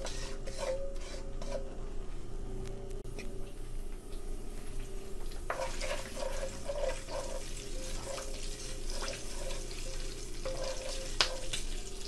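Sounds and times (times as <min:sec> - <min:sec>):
wooden spatula scraping a pan: 0:00.0 - 0:01.7, 0:05.5 - 0:11.7
hot oil sizzling: 0:04.2 - 0:12.0.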